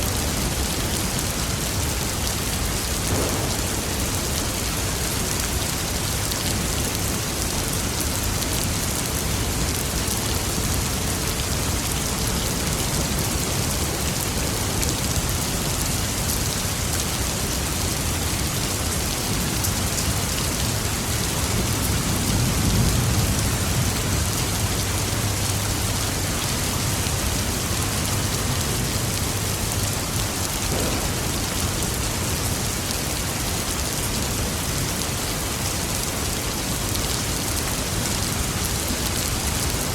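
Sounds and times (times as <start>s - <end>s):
rain pattering: 0.0s - 39.9s
distant thunder rolling: 2.8s - 5.2s, 30.6s - 32.3s.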